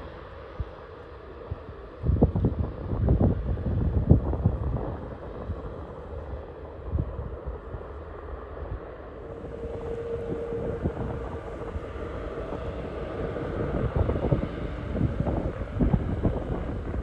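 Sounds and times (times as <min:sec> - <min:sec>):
wind buffeting microphone: 0:02.0 - 0:17.0
distant jet engines rumbling: 0:05.0 - 0:17.0
steady tone: 0:09.2 - 0:17.0.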